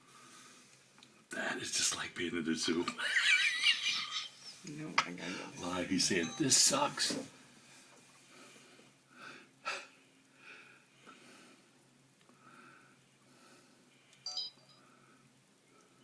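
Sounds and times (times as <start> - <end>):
faint breathing: 0.0 - 0.9, 5.2 - 5.6, 7.5 - 14.2, 14.8 - 16.0.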